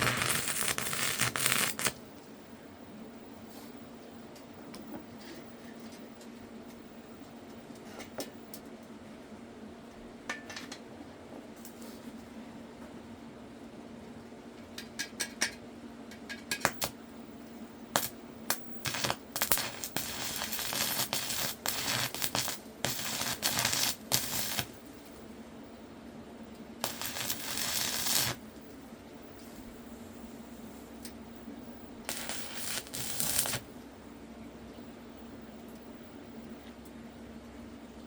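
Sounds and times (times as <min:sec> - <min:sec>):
steady low hum: 0:16.7 - 0:38.0.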